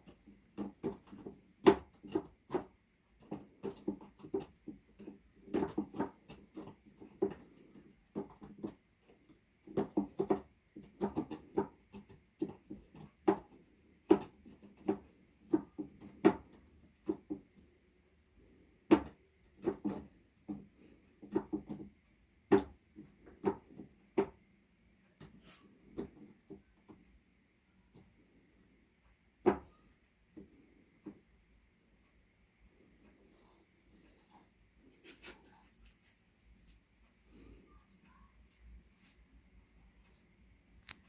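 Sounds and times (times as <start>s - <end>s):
cat scratching scratcher: 0.0s - 24.4s.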